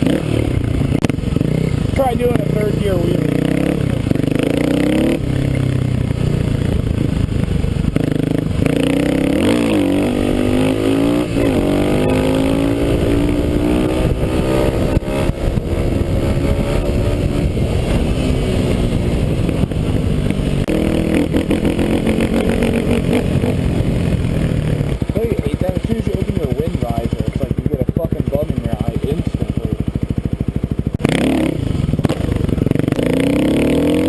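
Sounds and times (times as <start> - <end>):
motorcycle engine revving: 0.0 - 34.0
wind noise: 3.2 - 25.2.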